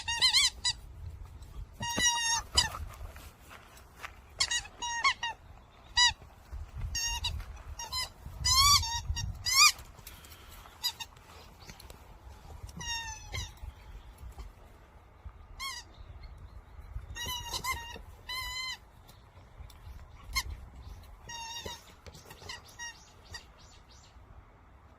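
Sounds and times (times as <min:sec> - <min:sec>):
squeaky toy ball squeaking: 0:00.0 - 0:00.8, 0:01.8 - 0:02.8, 0:04.4 - 0:06.2, 0:07.0 - 0:09.8, 0:12.8 - 0:13.6, 0:15.6 - 0:15.9, 0:17.1 - 0:18.8, 0:21.2 - 0:23.1.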